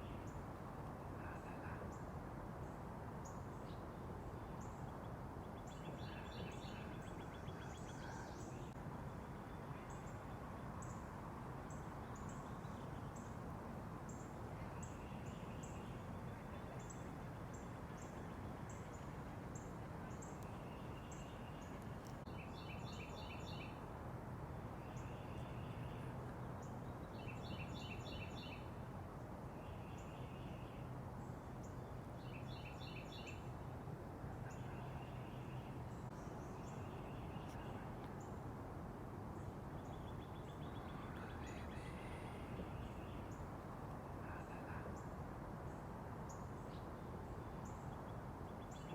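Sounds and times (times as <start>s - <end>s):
low background noise: 0.0s - 48.9s
faint bird chirps and ticks: 36.1s - 38.4s.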